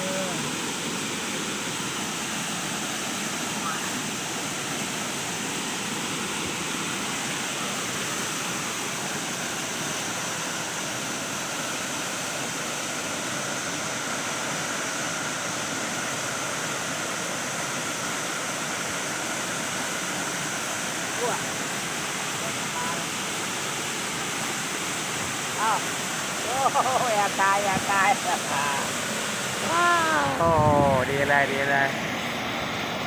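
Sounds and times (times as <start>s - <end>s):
waterfall rushing over rock: 0.0s - 33.0s.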